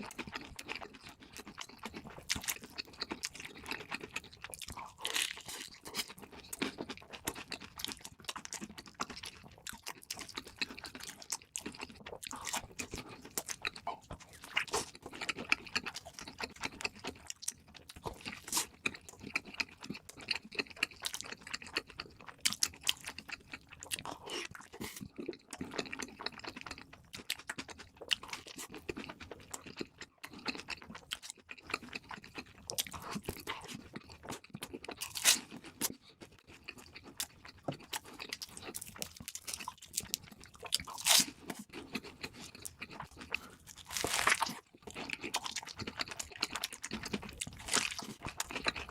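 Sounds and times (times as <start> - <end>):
crunchy chewing: 0.0 - 48.9.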